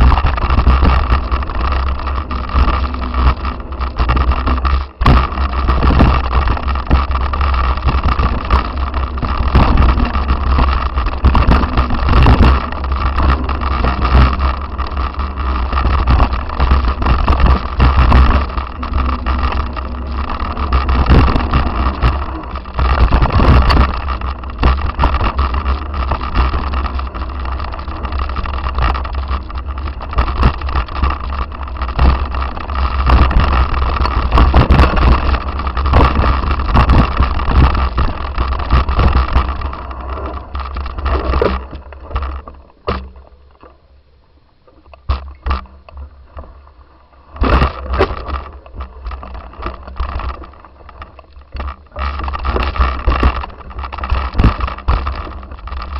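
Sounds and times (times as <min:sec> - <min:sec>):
wind buffeting microphone: 0:00.0 - 0:43.5
short knocks and rattles: 0:00.0 - 0:43.8, 0:44.7 - 0:55.9.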